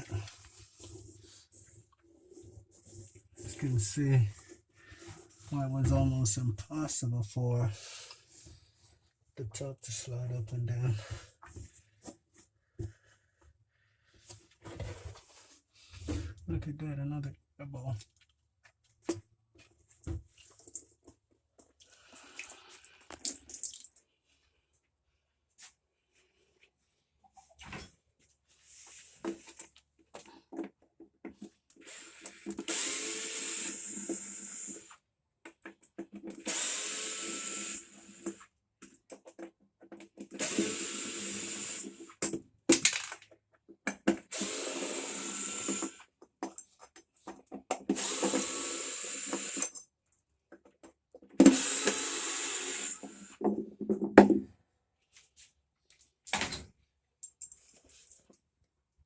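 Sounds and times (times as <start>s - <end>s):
power tool running: 44.3s - 46.0s, 48.0s - 49.6s, 51.4s - 53.3s.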